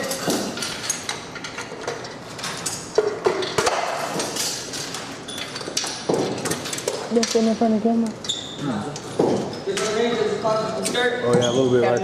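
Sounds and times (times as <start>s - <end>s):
metal tools clinking: 0.0s - 7.6s.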